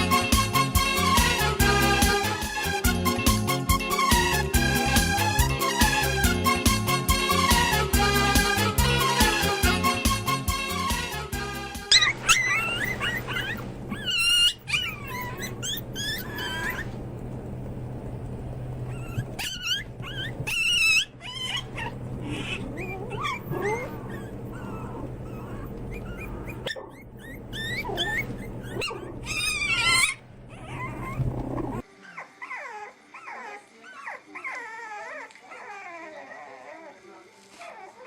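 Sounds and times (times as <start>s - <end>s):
puppies whimpering and yelping: 11.9s - 38.0s
steady low hum: 12.1s - 31.8s.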